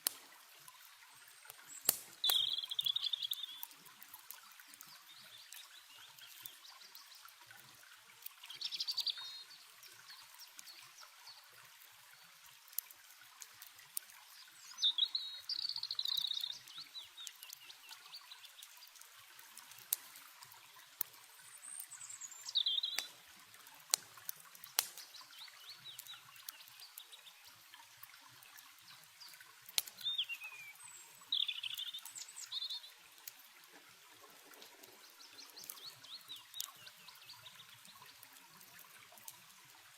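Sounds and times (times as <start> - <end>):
campfire crackling: 0.0 - 39.9
running water trickling: 0.0 - 39.9
songbird chirping: 1.1 - 7.3, 8.4 - 11.5, 14.3 - 19.0, 21.4 - 23.2, 24.7 - 27.6, 28.8 - 33.2, 34.2 - 38.2.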